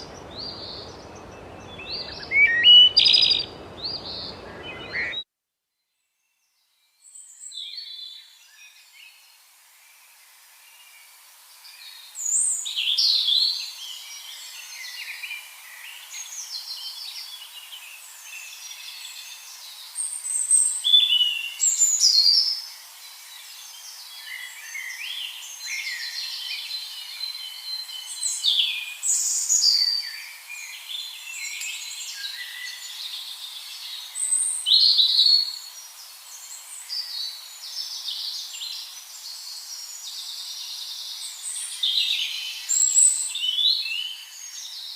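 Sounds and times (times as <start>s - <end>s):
birds chirping and trilling: 0.0s - 5.2s
faint steady hiss: 0.0s - 5.2s, 6.5s - 44.9s.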